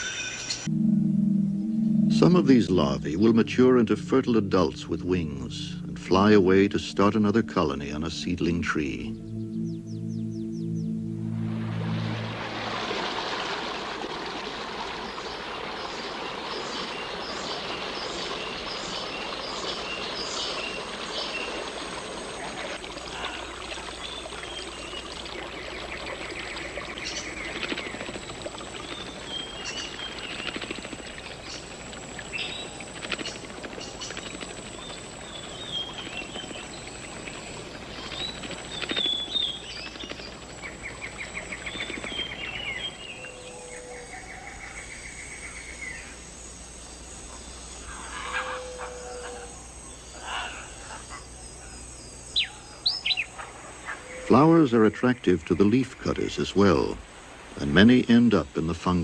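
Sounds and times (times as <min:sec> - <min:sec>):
bird trill: 0:00.0 - 0:56.9
high insect-like tone: 0:00.0 - 0:59.0
steady hiss: 0:11.5 - 0:59.0
bird chirps and calls: 0:15.8 - 0:46.0, 0:47.3 - 0:54.9.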